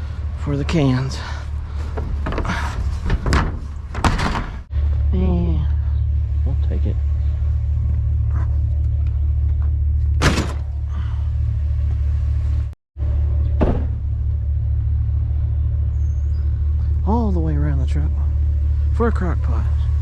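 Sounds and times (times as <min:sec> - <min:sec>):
truck engine idling: 0:00.0 - 0:20.0
sharp clunk: 0:13.6 - 0:14.0.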